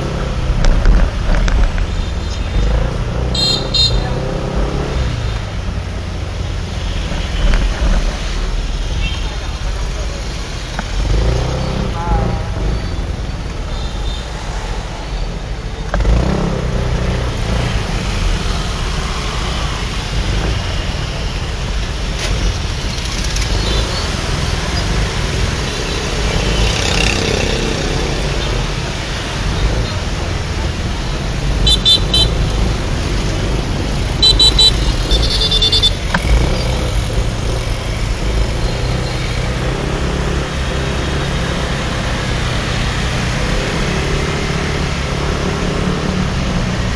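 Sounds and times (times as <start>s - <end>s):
motorbike engine and road rumble: 0.0s - 46.9s
horn beeps: 3.3s - 4.4s, 31.6s - 32.7s, 34.1s - 37.7s.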